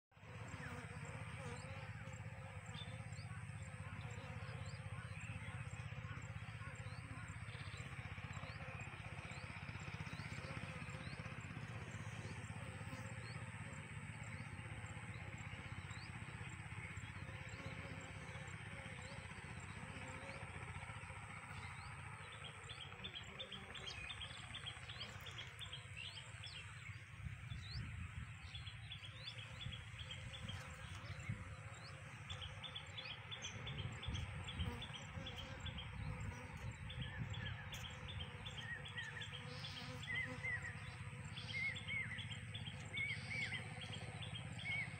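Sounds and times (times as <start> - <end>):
small birds chirping: 21.2 - 44.9.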